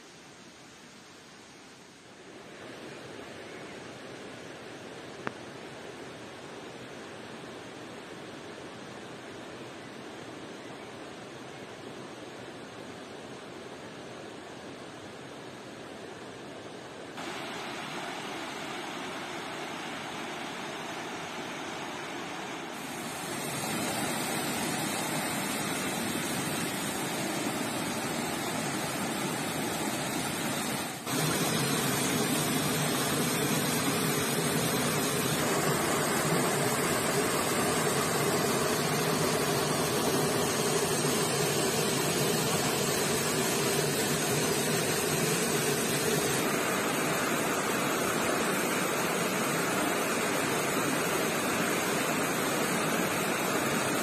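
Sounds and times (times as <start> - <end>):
stream water rushing: 15.0 - 54.0.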